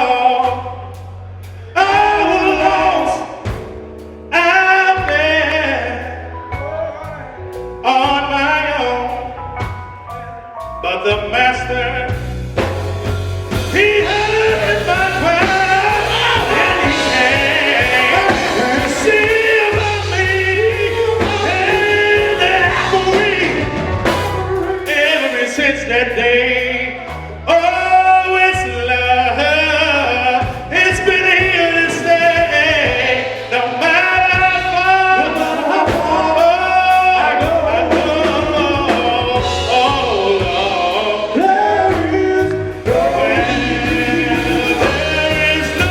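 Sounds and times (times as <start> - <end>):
male group singing: 0.0 - 0.9, 1.8 - 3.5, 13.6 - 45.9
band playing: 0.0 - 45.9
bass low notes: 0.0 - 45.9.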